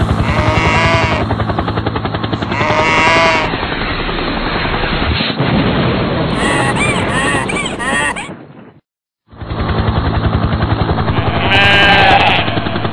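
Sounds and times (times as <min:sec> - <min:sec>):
sheep bleating: 0:00.2 - 0:01.2, 0:02.4 - 0:03.5, 0:11.2 - 0:12.5.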